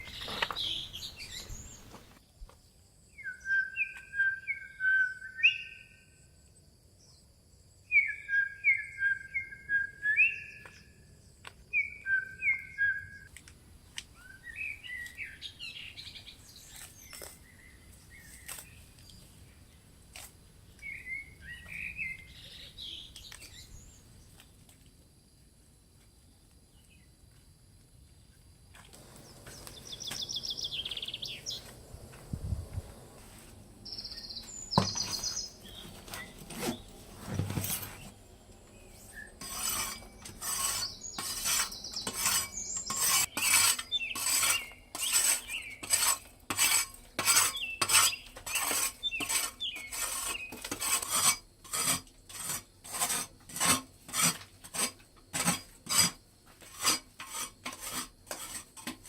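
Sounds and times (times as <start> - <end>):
bird chirps: 0.0 - 1.9, 3.1 - 6.2, 7.9 - 11.0, 11.7 - 13.3, 29.1 - 31.7, 33.9 - 36.9, 38.7 - 45.8, 47.4 - 50.6
hand tool scraping: 0.0 - 2.2, 33.2 - 38.2, 38.9 - 59.0.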